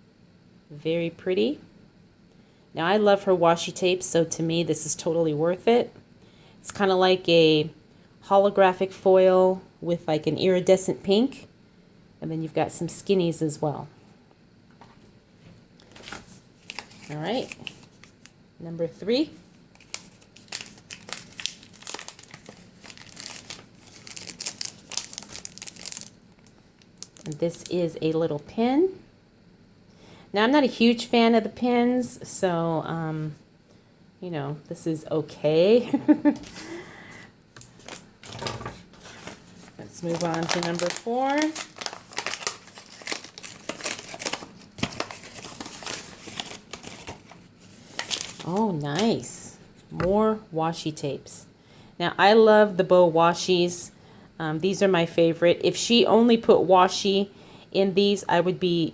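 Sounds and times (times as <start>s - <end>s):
gift wrapping crinkling: 15.8s - 18.3s, 19.4s - 27.8s, 37.6s - 49.2s.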